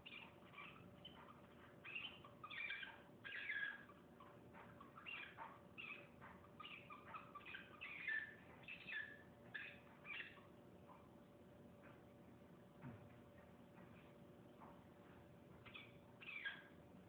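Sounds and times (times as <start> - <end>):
cockatiel squeaky chirps: 0.0 - 10.5, 15.6 - 16.8.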